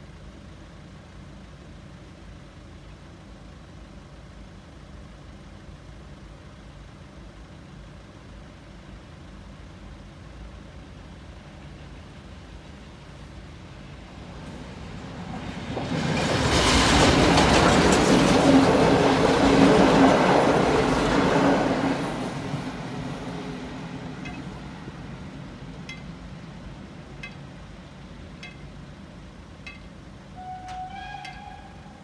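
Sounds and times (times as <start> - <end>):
train wheels clattering on rails: 14.4 - 32.0.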